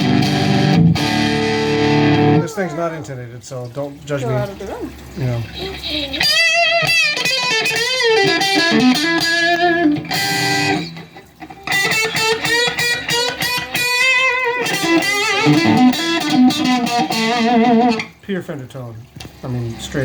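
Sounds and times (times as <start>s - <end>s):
electric guitar lead phrases: 0.0s - 2.5s, 6.2s - 11.0s, 11.6s - 18.1s.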